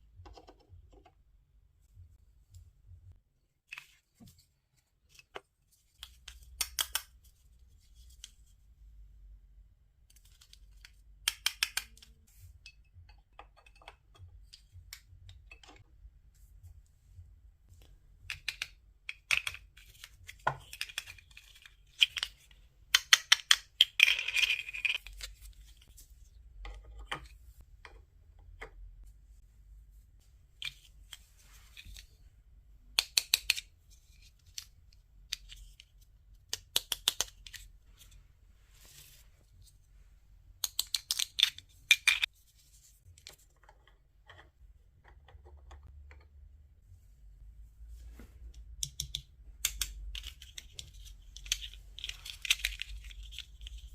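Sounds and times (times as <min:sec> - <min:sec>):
plastic toy pieces clicking: 0:06.4 - 0:07.1, 0:10.2 - 0:12.1, 0:18.3 - 0:25.4, 0:33.0 - 0:33.7, 0:35.3 - 0:37.6, 0:40.6 - 0:42.3, 0:48.8 - 0:53.9.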